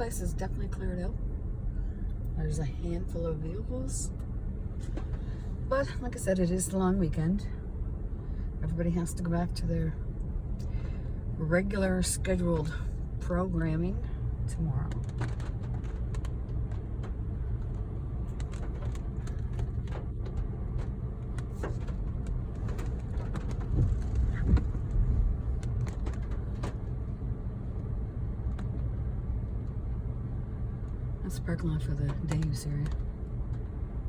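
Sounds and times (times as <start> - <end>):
engine and tyre rumble: 0.0 - 34.0.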